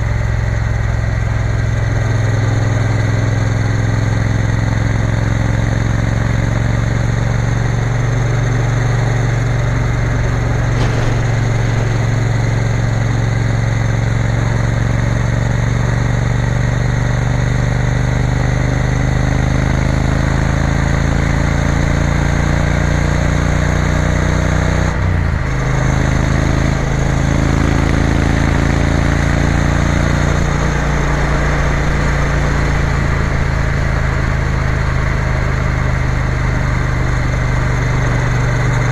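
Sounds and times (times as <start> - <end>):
motorcycle engine running: 0.0 - 23.7.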